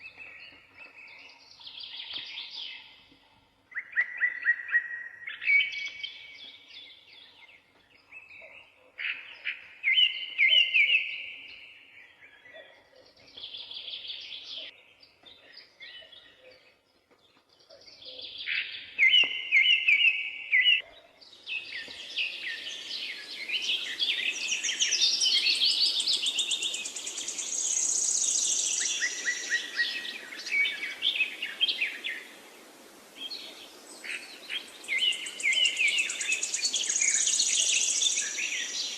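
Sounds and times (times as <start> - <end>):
songbirds chirping: 0.0 - 38.9
steady hiss: 22.0 - 38.9.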